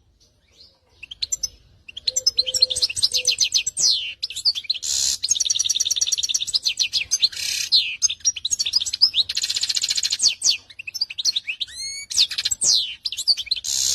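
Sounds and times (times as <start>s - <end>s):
canary singing trills: 0.0s - 13.9s.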